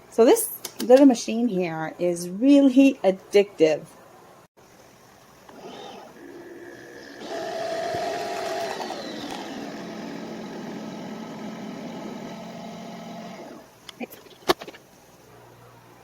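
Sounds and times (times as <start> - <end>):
coffee machine pump hum: 5.4 - 13.7.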